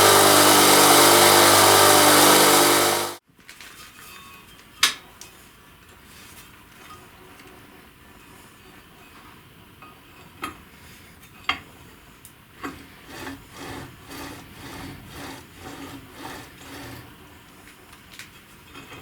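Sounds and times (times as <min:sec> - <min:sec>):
back-and-forth scraping strokes: 0:00.0 - 0:03.2, 0:12.8 - 0:17.2.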